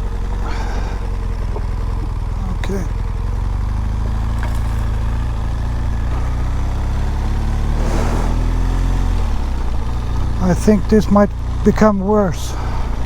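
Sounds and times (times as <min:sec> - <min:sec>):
motorcycle engine droning: 0:00.0 - 0:13.0.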